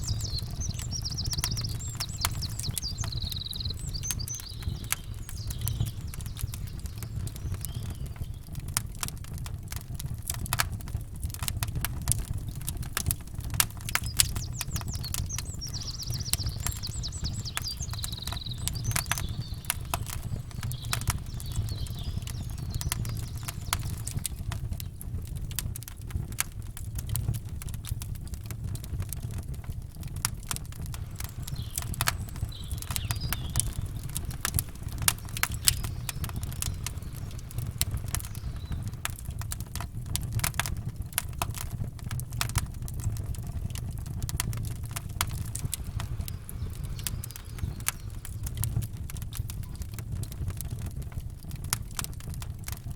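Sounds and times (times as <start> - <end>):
bird trilling and chirping: 0.0 - 8.3, 14.0 - 24.2, 31.0 - 39.2
steady low rumble: 0.0 - 8.8, 30.9 - 50.7
campfire crackling and popping: 0.0 - 52.9.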